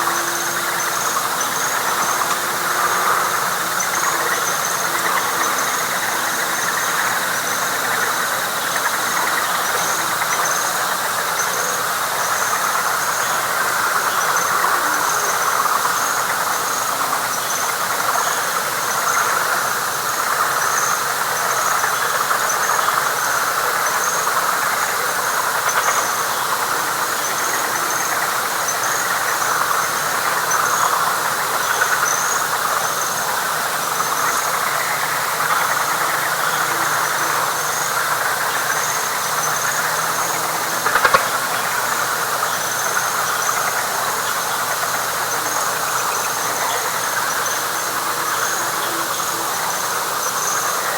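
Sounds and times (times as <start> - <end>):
frog chorus: 0.0 - 50.9.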